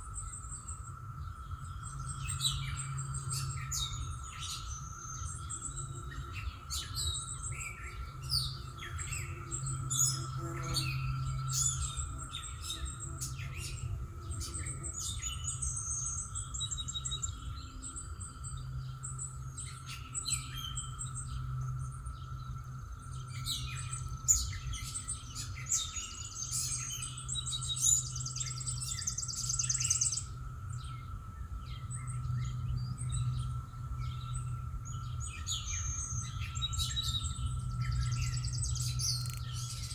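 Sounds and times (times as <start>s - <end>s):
songbirds singing and chirping: 0.0s - 39.9s
steady high hum: 0.0s - 39.9s
bird trill: 23.1s - 39.9s.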